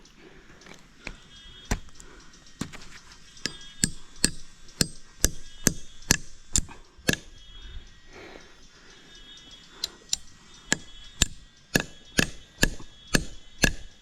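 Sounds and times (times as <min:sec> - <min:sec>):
sharp chopping strikes: 0:03.4 - 0:07.3, 0:09.9 - 0:14.0.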